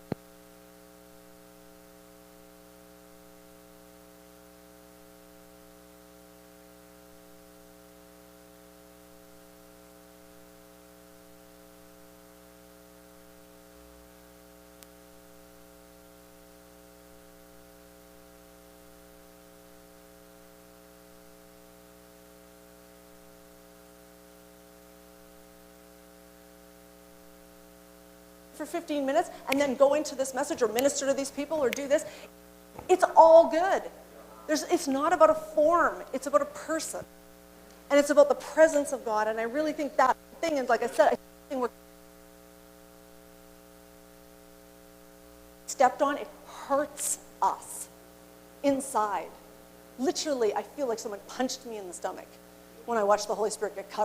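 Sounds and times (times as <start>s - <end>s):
electrical mains hum: 0.0s - 54.0s
faint click: 14.8s - 15.0s.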